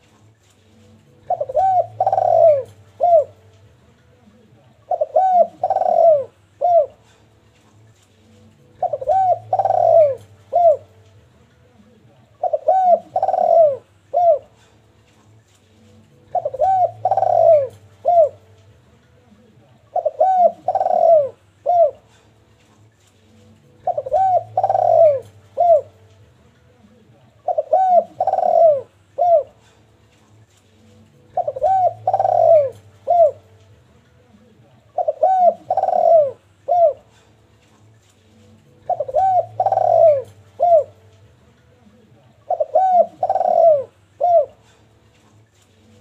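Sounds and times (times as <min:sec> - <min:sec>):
low steady hum: 0:00.0 - 0:46.0
dove cooing: 0:01.1 - 0:03.4, 0:04.3 - 0:07.4, 0:08.6 - 0:11.0, 0:12.4 - 0:14.8, 0:16.1 - 0:18.6, 0:19.8 - 0:22.4, 0:23.6 - 0:26.0, 0:26.9 - 0:29.9, 0:31.2 - 0:33.6, 0:34.3 - 0:37.4, 0:38.4 - 0:41.1, 0:42.4 - 0:45.0.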